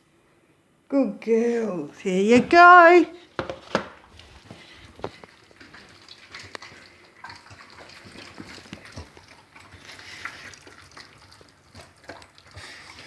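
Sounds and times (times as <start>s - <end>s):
dogs chewing and licking: 4.0s - 13.0s.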